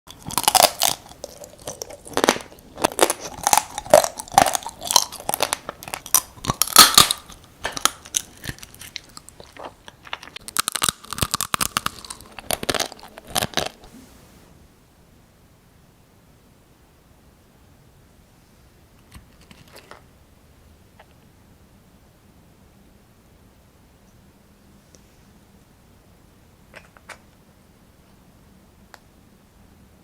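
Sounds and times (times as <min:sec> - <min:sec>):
chewing and crunching crab shell: 0:00.1 - 0:13.9.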